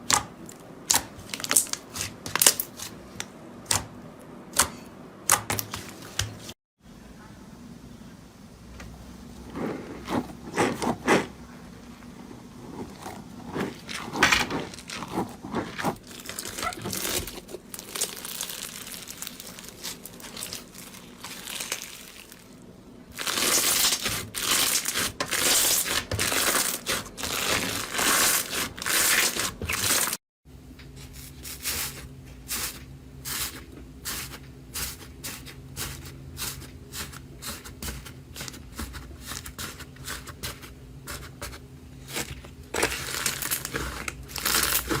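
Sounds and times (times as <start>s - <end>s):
slime squishing and crackling: 12.8s - 30.2s, 42.0s - 45.0s.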